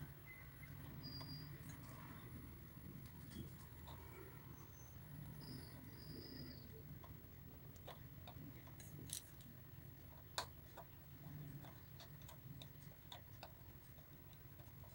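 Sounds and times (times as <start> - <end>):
low steady hum: 0.0 - 14.9
small tools clicking and tapping: 7.0 - 9.5.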